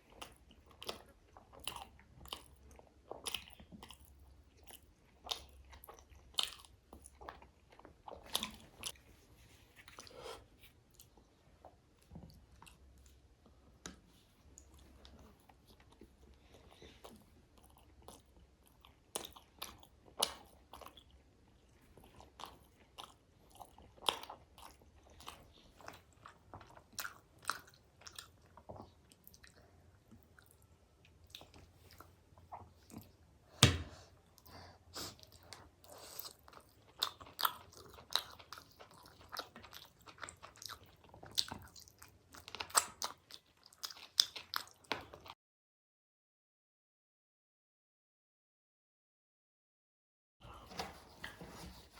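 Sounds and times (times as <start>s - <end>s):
person chewing food: 0.0s - 45.4s.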